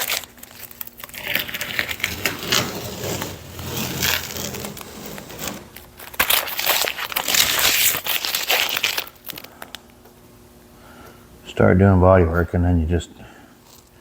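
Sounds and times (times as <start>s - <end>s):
material rustling and crinkling: 0.0s - 9.8s.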